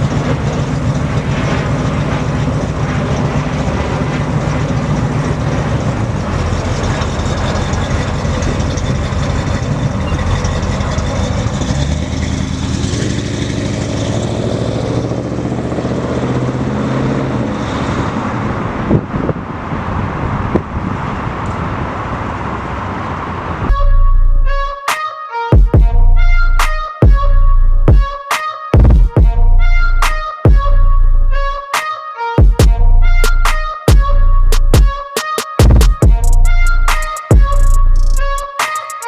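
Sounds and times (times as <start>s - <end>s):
pickup engine running: 0.0s - 24.6s, 32.6s - 38.6s
road and tyre noise: 0.0s - 39.0s
sharp knocks: 32.4s - 36.3s.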